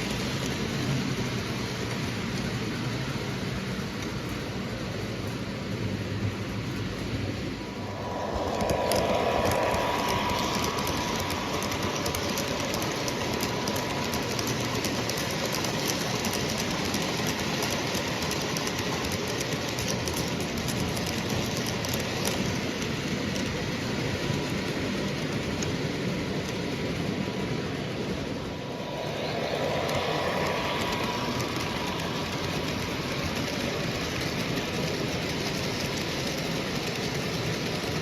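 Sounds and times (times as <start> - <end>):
thin steady whine: 0.0 - 22.4, 23.3 - 38.0
model train wheels rumbling: 0.0 - 38.0
wheels clicking over rail joints: 7.9 - 38.0.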